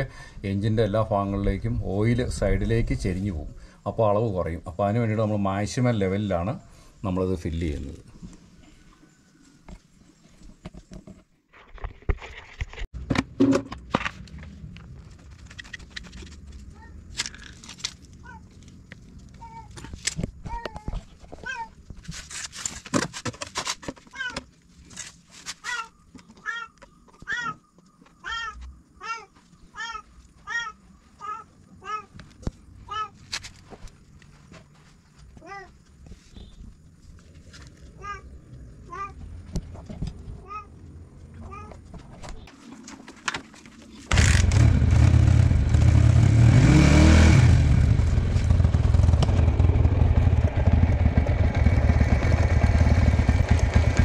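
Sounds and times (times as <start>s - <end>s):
motorcycle engine starting and idling: 44.1s - 54.0s.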